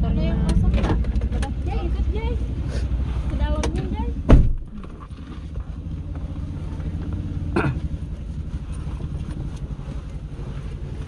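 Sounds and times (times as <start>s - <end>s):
car engine idling: 0.0s - 11.0s
dull knock: 4.3s - 4.7s.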